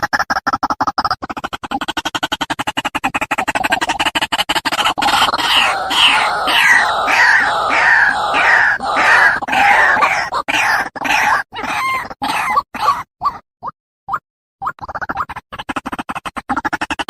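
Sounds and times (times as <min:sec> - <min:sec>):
waterhen harsh croaking calls: 0:04.8 - 0:13.1.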